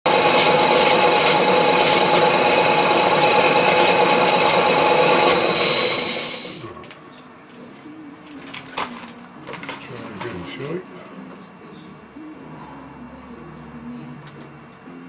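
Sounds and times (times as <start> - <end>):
machine tool cutting metal: 0.1 - 6.8.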